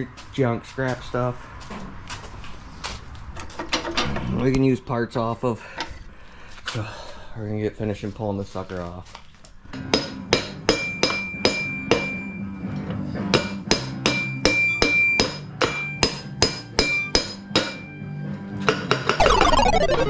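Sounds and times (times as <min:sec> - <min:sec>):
music: 0:19.2 - 0:20.0.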